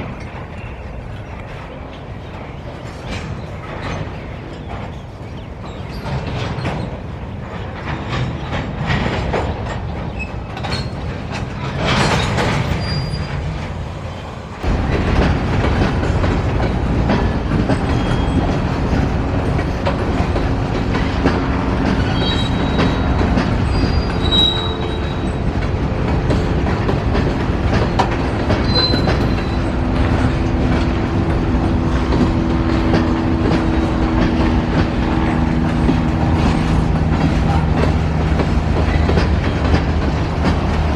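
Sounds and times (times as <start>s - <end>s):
train wheel squeals: 0.0s - 14.4s, 16.6s - 26.8s, 27.7s - 31.1s
train cars clicking over rail joints: 0.0s - 40.9s.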